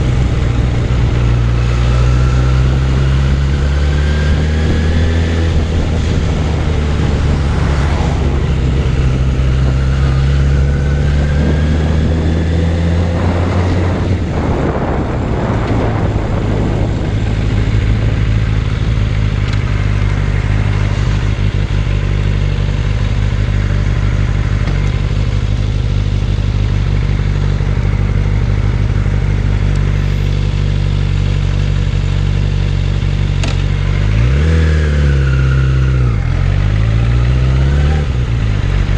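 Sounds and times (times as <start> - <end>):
motorcycle engine running: 0.0 - 38.9
rushing noise: 1.4 - 19.4.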